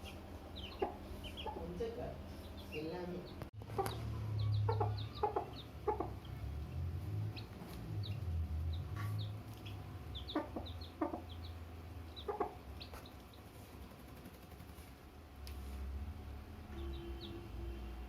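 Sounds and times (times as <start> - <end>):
hen clucking: 0.0 - 1.8, 3.6 - 6.3, 8.1 - 13.2
chicks cheeping: 0.0 - 13.6, 16.7 - 17.6
low steady rumble: 0.0 - 13.8.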